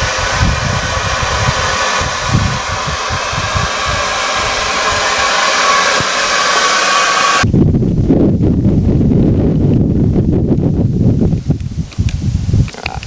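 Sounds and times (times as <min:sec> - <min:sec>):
air blower rushing with whine: 0:00.0 - 0:07.5
low rumbling fire: 0:00.0 - 0:12.6.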